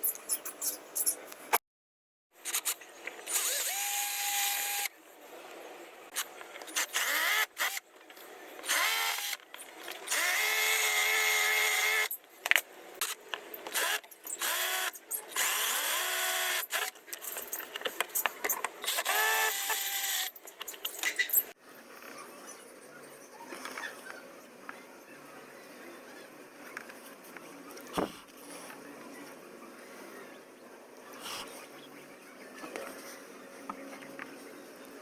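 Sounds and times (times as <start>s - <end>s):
power drill whine: 3.3s - 4.9s, 8.6s - 9.4s, 10.1s - 12.1s, 18.9s - 20.3s.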